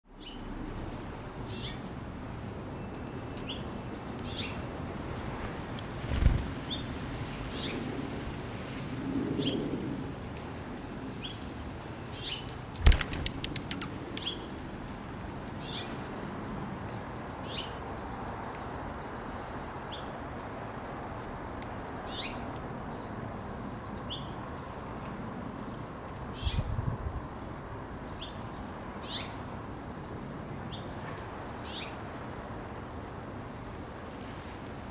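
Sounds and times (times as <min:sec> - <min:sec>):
small birds chipping: 0:00.2 - 0:07.8, 0:10.2 - 0:32.5
wings fluttering: 0:05.2 - 0:07.0, 0:12.5 - 0:14.5
sharp thumps: 0:12.8 - 0:14.0.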